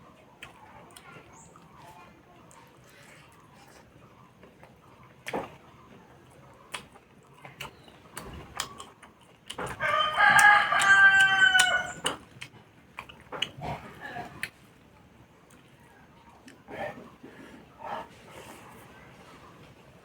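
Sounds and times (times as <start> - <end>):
rooster crowing: 9.8 - 12.1.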